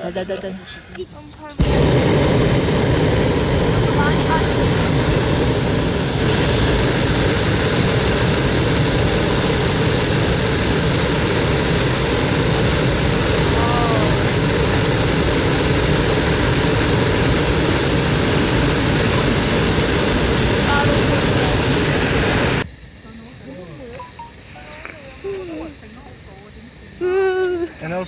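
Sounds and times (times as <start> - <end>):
propane burner rushing: 1.6 - 22.6.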